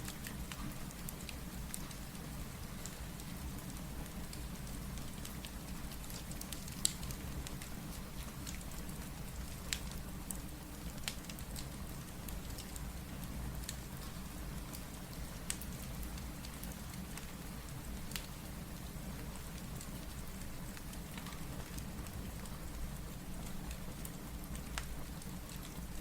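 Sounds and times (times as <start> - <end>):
crackling wood fire popping: 0.0 - 26.0
steady rain hiss: 0.0 - 26.0.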